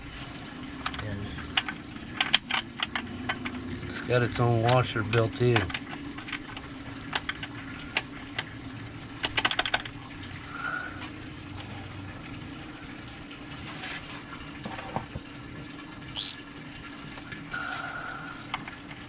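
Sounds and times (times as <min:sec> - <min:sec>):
metallic tool clicks: 0:16.2 - 0:16.4
ratchet clicking: 0:16.2 - 0:16.4.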